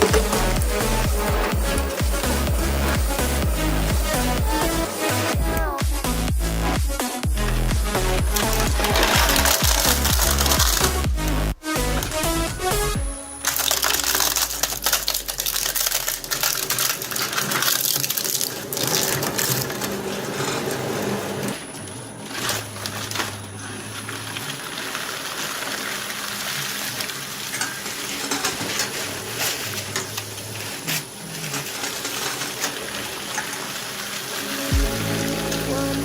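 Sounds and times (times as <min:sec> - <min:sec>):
low motor hum: 0:00.0 - 0:16.4, 0:34.7 - 0:36.0
shredder crunching plastic: 0:00.0 - 0:36.0.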